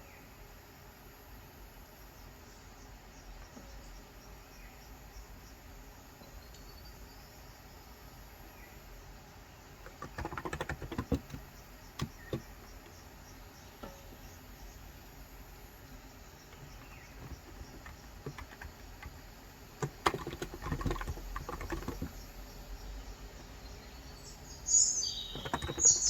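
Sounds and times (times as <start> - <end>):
faint bird chirps: 2.0 - 19.2, 19.8 - 26.0
keyboard typing: 9.8 - 13.0, 16.4 - 22.4, 25.0 - 26.0.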